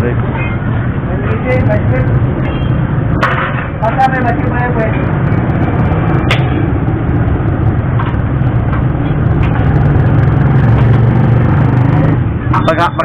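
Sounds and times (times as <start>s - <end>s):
motorcycle engine running: 4.4s - 12.4s.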